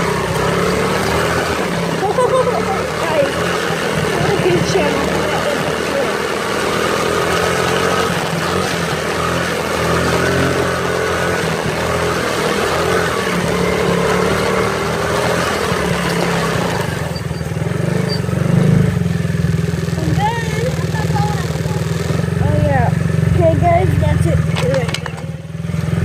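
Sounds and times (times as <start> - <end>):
small motorbike engine running: 0.0 - 26.0.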